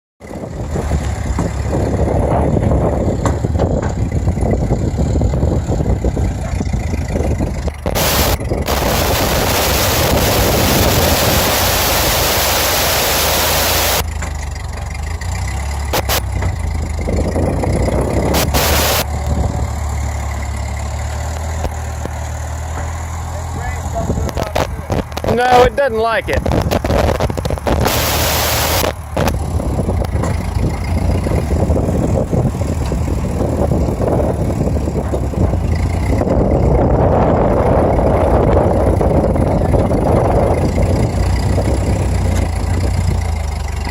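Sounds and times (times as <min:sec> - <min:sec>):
tractor engine running: 0:00.2 - 0:43.9
loud rushing hiss: 0:07.9 - 0:14.0, 0:18.4 - 0:19.0, 0:27.8 - 0:28.9.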